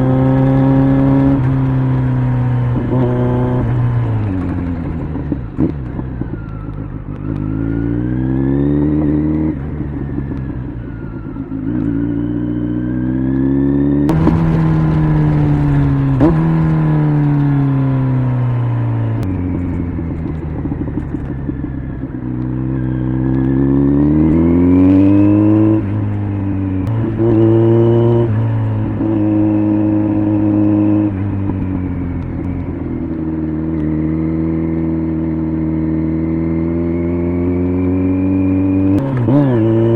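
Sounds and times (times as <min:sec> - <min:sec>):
motorcycle engine revving: 0:00.0 - 0:39.9
sharp crack: 0:14.1 - 0:19.4.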